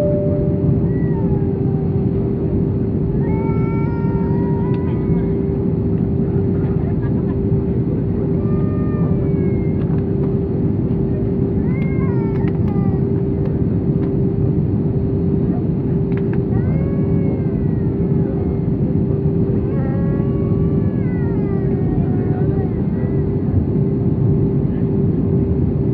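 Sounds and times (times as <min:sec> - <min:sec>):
aircraft cabin engine rumble: 0:00.0 - 0:25.9
steady hum: 0:00.0 - 0:25.9.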